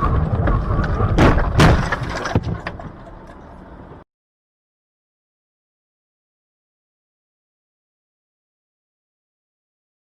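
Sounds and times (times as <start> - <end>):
low rumbling and handling noise: 0.0 - 4.0.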